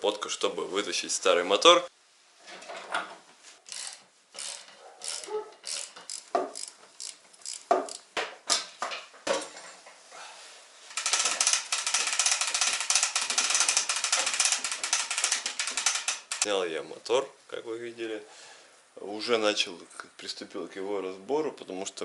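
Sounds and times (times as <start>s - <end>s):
ratchet wrench clicking rapidly: 3.7s - 8.0s, 10.9s - 16.5s
hand tools clanking on metal: 10.9s - 16.5s.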